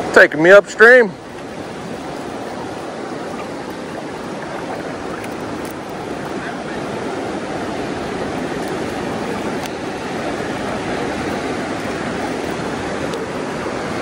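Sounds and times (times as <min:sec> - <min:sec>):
creek water rushing: 0:00.0 - 0:14.0.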